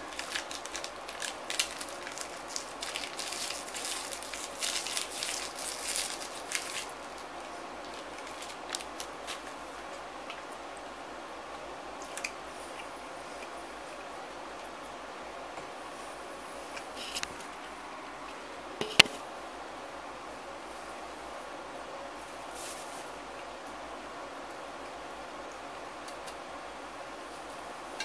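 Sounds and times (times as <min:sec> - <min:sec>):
plastic wrapper crinkling: 0:00.0 - 0:09.6.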